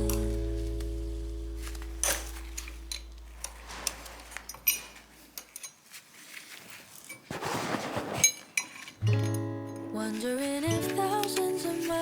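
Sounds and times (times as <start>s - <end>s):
metallic clinks of tools: 2.0s - 5.8s.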